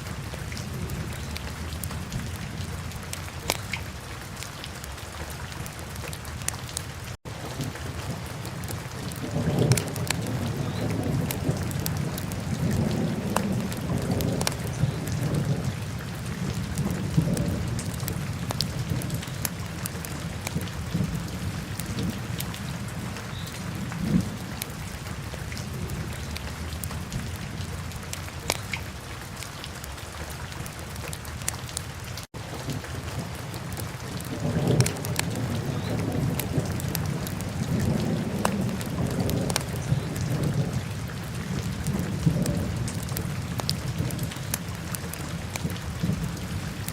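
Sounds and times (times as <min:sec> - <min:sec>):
fire crackling and popping: 0:03.1 - 0:03.8, 0:08.6 - 0:14.9, 0:28.1 - 0:28.8, 0:33.7 - 0:39.8.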